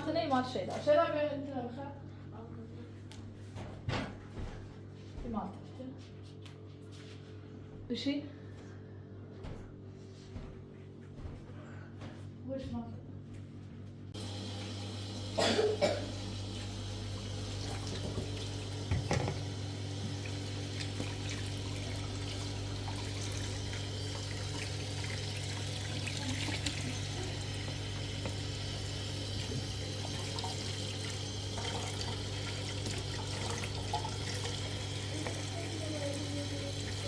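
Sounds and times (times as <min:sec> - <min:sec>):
running water: 0:14.2 - 0:37.0.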